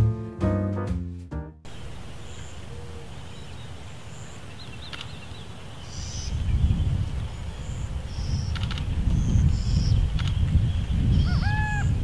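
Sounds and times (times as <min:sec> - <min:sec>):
faint clicks: 0:04.9 - 0:05.2, 0:08.5 - 0:08.9, 0:10.2 - 0:10.5.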